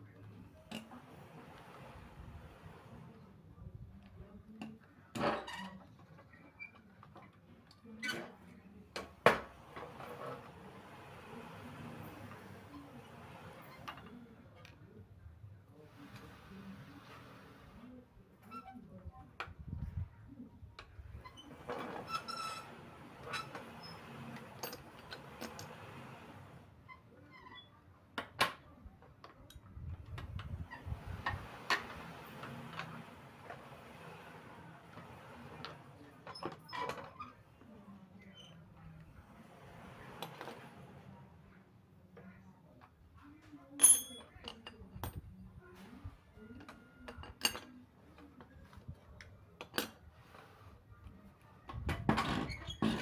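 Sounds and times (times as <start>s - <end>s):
tools and metal parts clinking: 23.2s - 25.8s, 43.8s - 45.3s, 46.7s - 48.8s.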